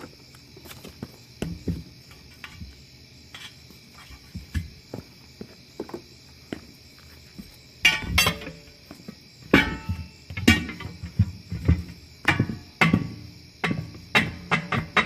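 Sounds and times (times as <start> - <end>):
crickets chirring: 0.0 - 15.0
knocks and clunks on tire: 1.4 - 2.7, 9.4 - 15.0.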